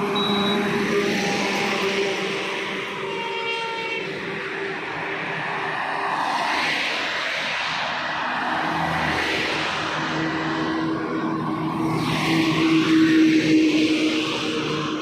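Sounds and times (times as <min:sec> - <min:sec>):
heavy vehicles passing on highway: 0:00.0 - 0:15.0
multi-tone horn: 0:03.0 - 0:04.2.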